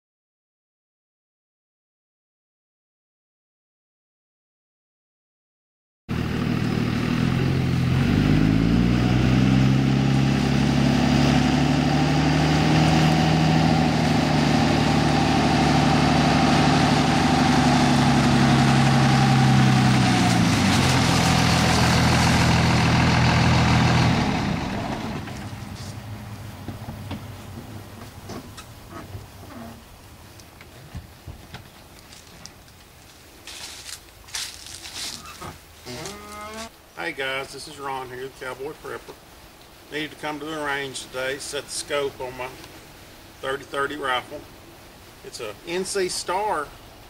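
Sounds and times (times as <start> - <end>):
vehicle engine running: 6.1 - 29.9.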